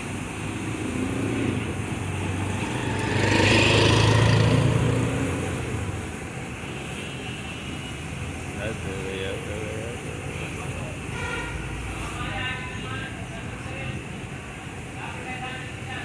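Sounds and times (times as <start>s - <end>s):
vehicle passing by: 0.0s - 6.4s.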